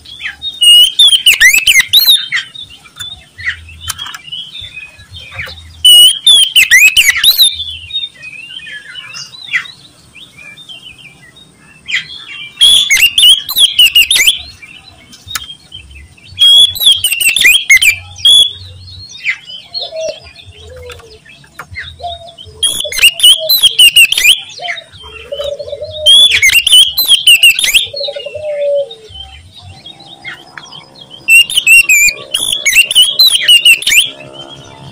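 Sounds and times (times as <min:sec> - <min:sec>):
faint lower-pitched bird calls: 0:00.0 - 0:34.9
songbird singing fast high notes: 0:05.8 - 0:07.9, 0:12.5 - 0:14.5, 0:16.3 - 0:18.8, 0:22.6 - 0:24.8, 0:26.0 - 0:28.3, 0:30.0 - 0:34.9.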